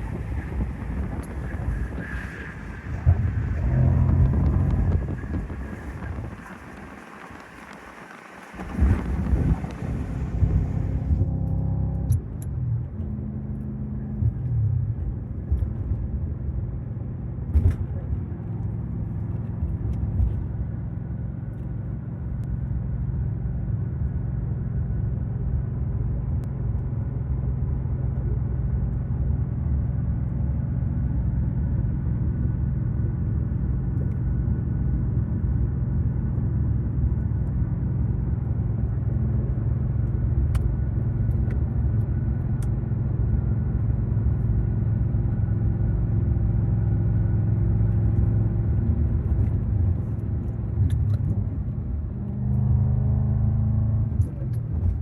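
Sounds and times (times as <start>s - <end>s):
car engine drone: 0.0s - 55.0s.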